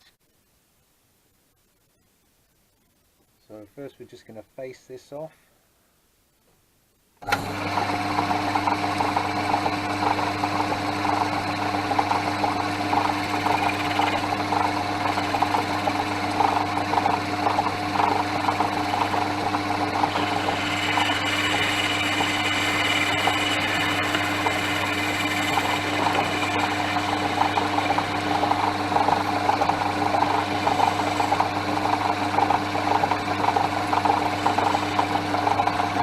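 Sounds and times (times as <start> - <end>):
metal lathe humming: 7.2 - 36.0
high-pitched whine: 18.8 - 31.4.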